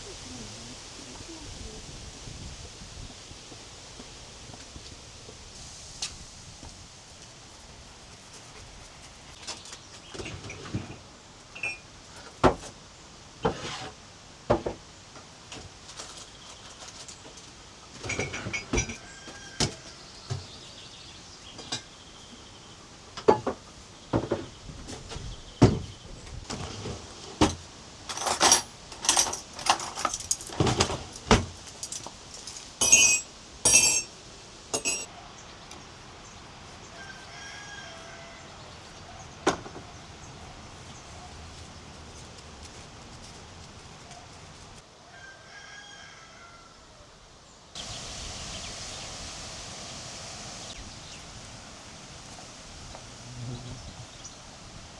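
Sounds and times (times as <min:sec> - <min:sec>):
hard objects knocking and clinking: 0:28.1 - 0:34.1, 0:34.7 - 0:35.1.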